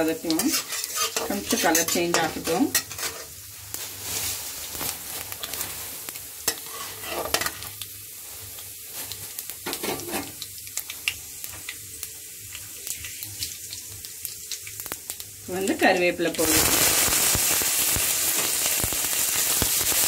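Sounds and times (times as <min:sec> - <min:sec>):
seeds sizzling and crackling in oil: 0:00.0 - 0:20.0
spatula scraping a pan: 0:00.3 - 0:03.4, 0:06.5 - 0:07.6.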